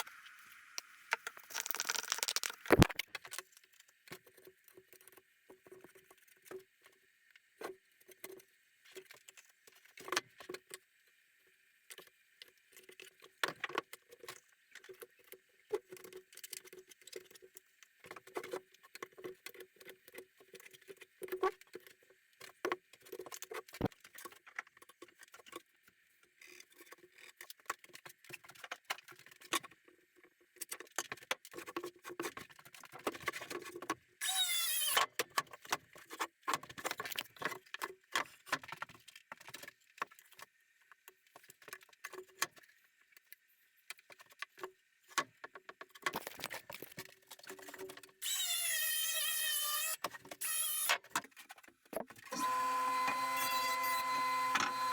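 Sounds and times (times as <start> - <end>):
tools and wood clicking and scraping: 0.8 - 7.0, 11.9 - 52.4
cordless drill whining: 52.3 - 54.9.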